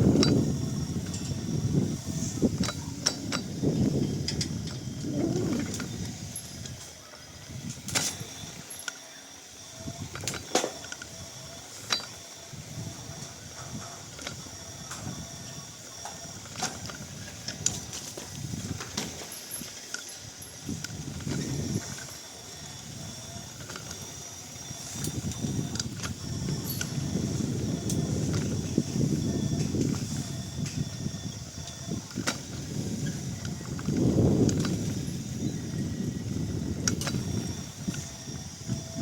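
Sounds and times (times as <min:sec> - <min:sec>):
mechanical clicks and clinks: 0:13.2 - 0:39.0.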